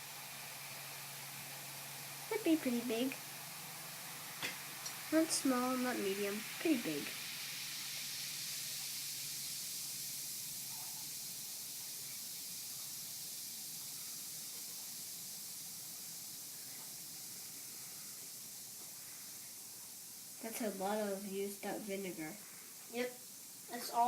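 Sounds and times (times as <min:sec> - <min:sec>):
baking soda and vinegar fizzing: 0:00.0 - 0:24.0.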